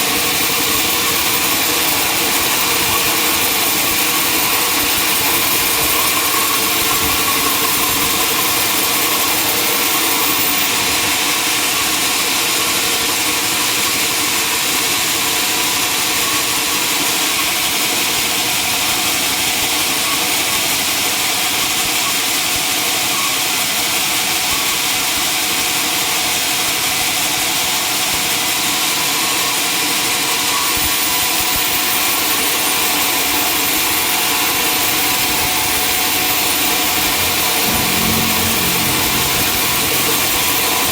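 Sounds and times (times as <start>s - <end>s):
sawmill machinery humming: 34.2s - 40.9s.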